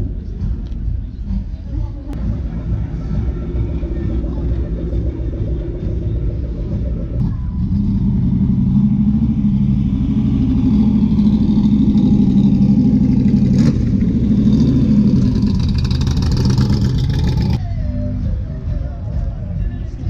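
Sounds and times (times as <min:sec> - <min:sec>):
car engine idling: 0:00.0 - 0:17.6.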